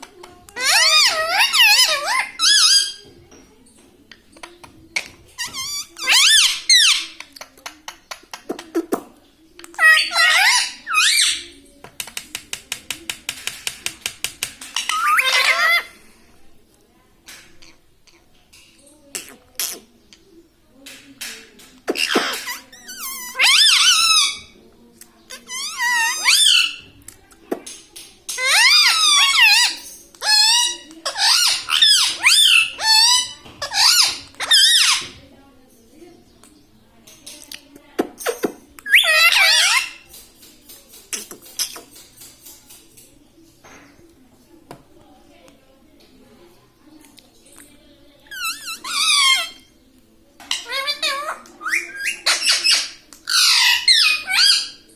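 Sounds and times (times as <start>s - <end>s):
parrot squeaky calls: 0.6s - 3.1s, 5.4s - 7.2s, 9.8s - 11.5s, 14.8s - 15.9s, 21.9s - 24.6s, 25.4s - 26.8s, 28.3s - 35.2s, 38.8s - 40.1s, 48.3s - 49.7s, 50.5s - 54.8s.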